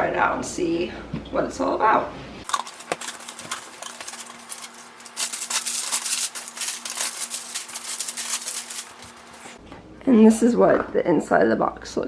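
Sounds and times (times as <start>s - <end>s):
cardboard box crackling and rustling: 2.5s - 9.6s
packing tape tearing: 2.5s - 9.6s.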